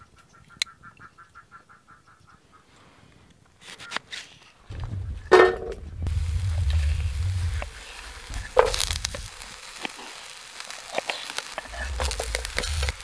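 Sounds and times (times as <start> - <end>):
low rumble: 4.7 - 9.7, 11.6 - 13.0
onion sizzling in a frying pan: 6.0 - 13.0.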